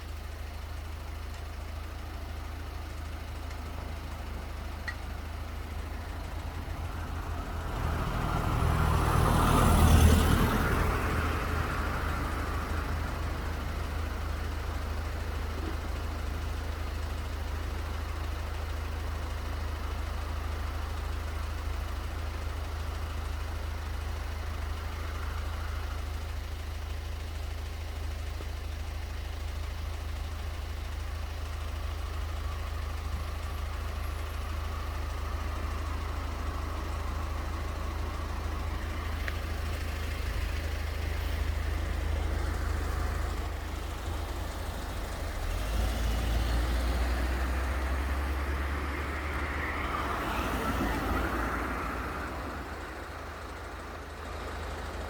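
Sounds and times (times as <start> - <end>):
vehicle passing by: 7.0 - 13.5, 34.7 - 54.6.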